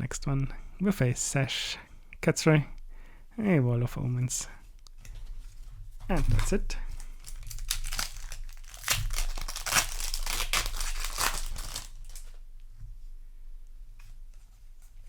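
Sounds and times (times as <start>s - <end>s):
foil wrapper tearing and crinkling: 6.1s - 12.4s.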